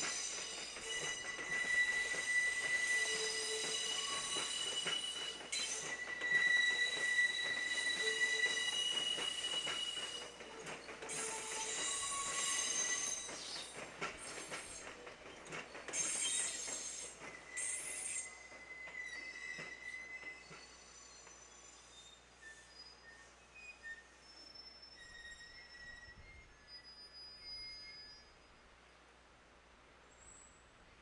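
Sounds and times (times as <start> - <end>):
train wheels squealing on rails: 0.0 - 28.8.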